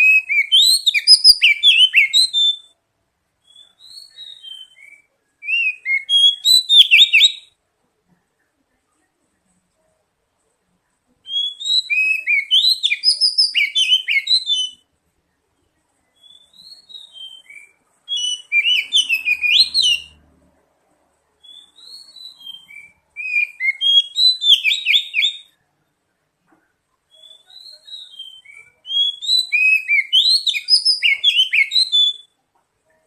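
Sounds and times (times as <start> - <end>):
bird song with whistled phrases: 0.0 - 2.8, 3.4 - 7.6, 11.2 - 14.9, 15.6 - 20.2, 21.4 - 25.6, 27.0 - 32.4.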